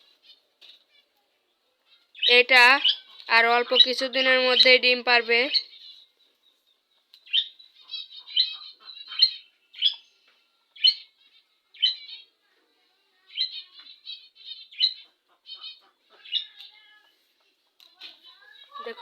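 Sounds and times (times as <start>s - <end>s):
budgerigars chirping and warbling: 1.9s - 6.1s, 7.2s - 10.0s, 10.8s - 12.3s, 13.3s - 16.7s.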